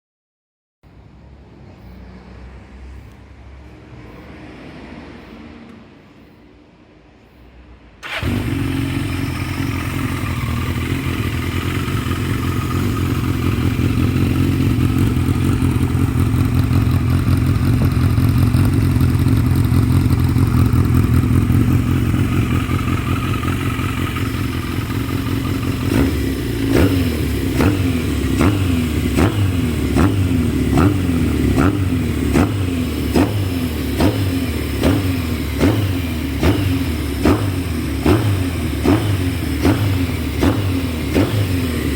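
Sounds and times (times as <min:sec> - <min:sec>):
motorcycle engine idling: 0:08.0 - 0:41.9
motorcycle engine throttle blips: 0:08.0 - 0:41.9.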